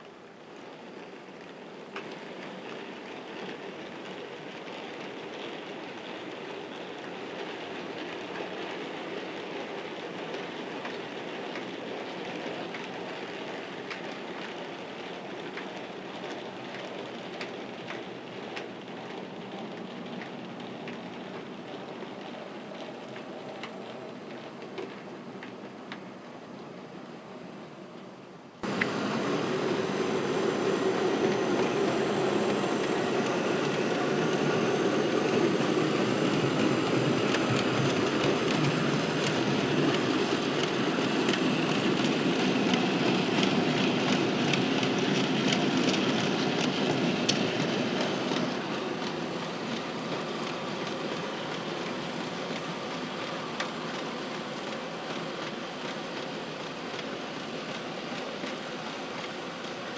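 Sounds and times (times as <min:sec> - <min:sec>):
model train wheels rumbling: 0:28.6 - 0:59.9.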